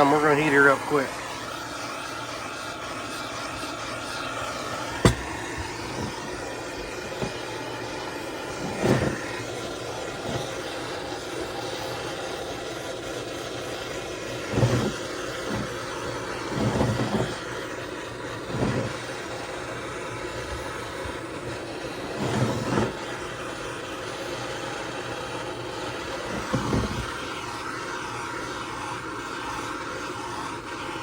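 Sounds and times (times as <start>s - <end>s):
heat gun blowing hiss: 0.0s - 31.0s.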